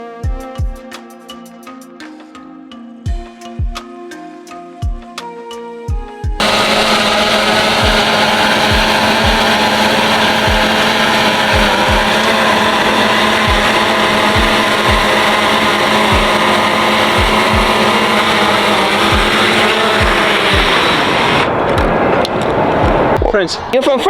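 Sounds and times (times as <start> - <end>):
hip-hop music: 0.0 - 6.2, 7.6 - 22.2
deep bass hits sliding down: 19.1 - 23.4.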